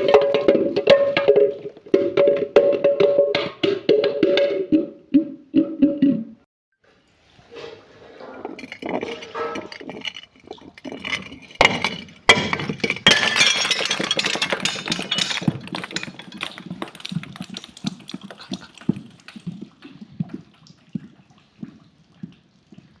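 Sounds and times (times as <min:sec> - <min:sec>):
glass breaking: 0:08.6 - 0:18.7.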